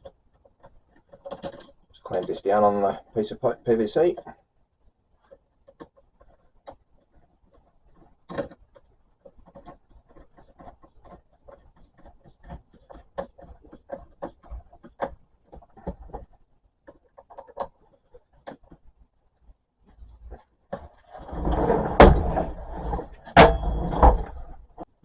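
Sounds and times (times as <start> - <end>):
clicks and knocks on plastic pipe: 0.0 - 2.4, 5.2 - 19.1.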